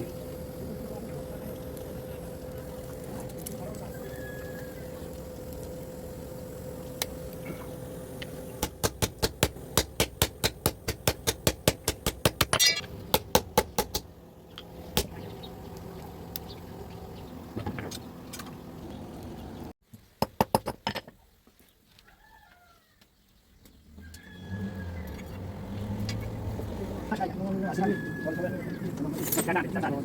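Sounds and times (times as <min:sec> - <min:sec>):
steady low hum: 0:00.0 - 0:19.7.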